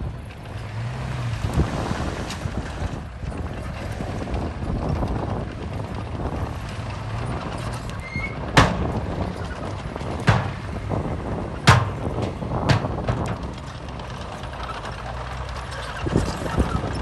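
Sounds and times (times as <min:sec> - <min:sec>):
diesel engine running: 0:00.0 - 0:17.0
sharp knocks: 0:08.4 - 0:13.8.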